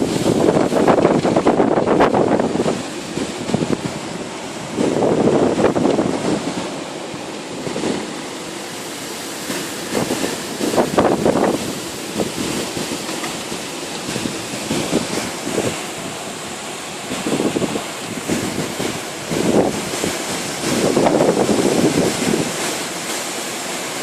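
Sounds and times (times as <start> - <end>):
storm wind gusting: 0.0 - 23.0.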